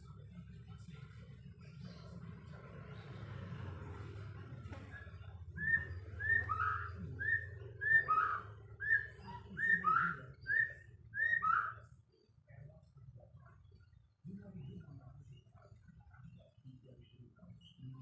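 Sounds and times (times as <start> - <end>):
bird singing whistled phrase: 5.6 - 11.9.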